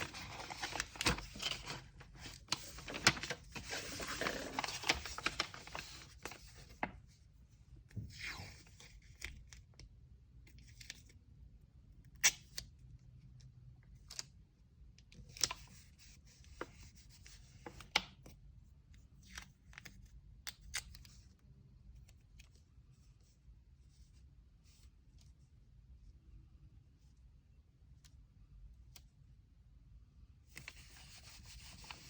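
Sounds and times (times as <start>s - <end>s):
paper rustling: 0.0s - 6.9s.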